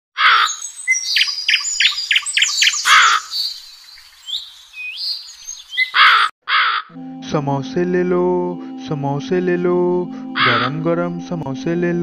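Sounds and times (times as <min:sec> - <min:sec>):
loud harsh bird calls: 0:00.2 - 0:06.9
birds chirping and whistling: 0:00.3 - 0:06.3.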